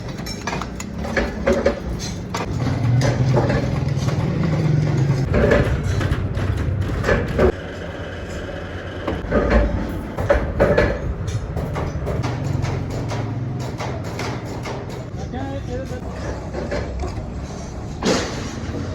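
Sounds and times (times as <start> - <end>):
sharp knocks and clatters: 0.0 - 7.9, 9.0 - 15.2.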